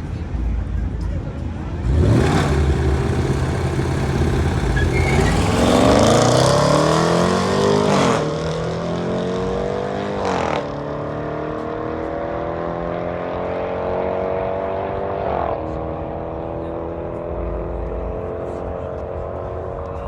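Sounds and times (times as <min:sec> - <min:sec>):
car engine accelerating hard: 0:01.7 - 0:20.0.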